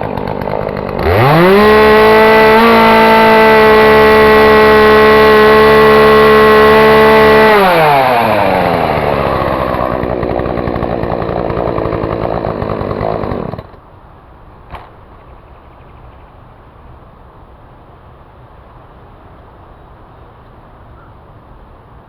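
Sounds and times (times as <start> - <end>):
chainsaw engine revving and idling: 0.0 - 13.8.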